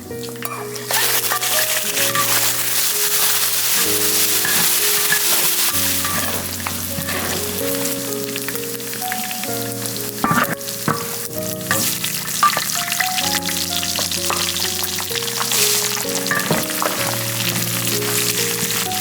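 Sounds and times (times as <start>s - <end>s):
background music sustained notes: 0.0s - 19.0s
food sizzling in hot oil: 0.0s - 19.0s.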